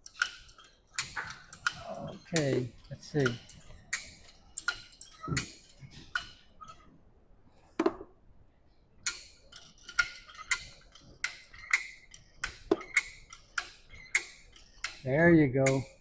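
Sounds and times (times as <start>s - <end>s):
chain hoist ratchet clicking: 0.0s - 6.9s, 9.0s - 16.0s.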